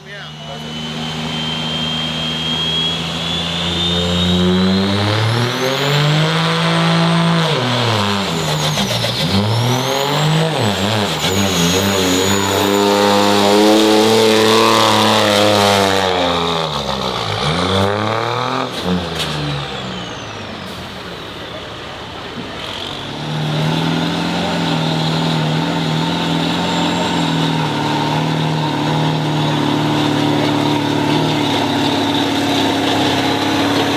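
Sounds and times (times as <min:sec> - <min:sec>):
turbo whistle: 0:00.0 - 0:16.6
diesel truck engine revving: 0:00.0 - 0:33.9.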